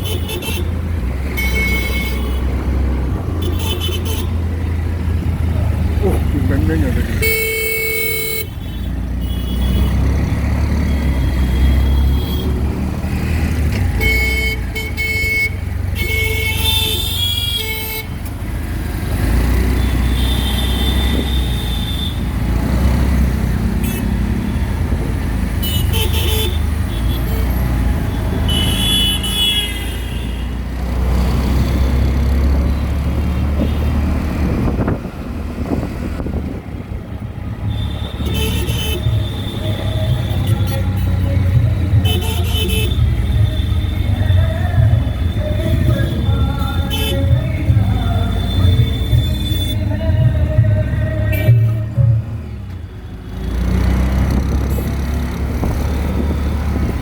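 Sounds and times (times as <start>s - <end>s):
vehicle horns honking: 0.0s - 4.5s, 6.2s - 12.6s, 13.8s - 18.3s, 19.6s - 22.5s, 23.8s - 24.7s, 25.6s - 30.6s, 33.4s - 34.1s, 37.6s - 50.3s, 51.2s - 51.8s
auto-rickshaw engine rumble: 0.0s - 57.0s.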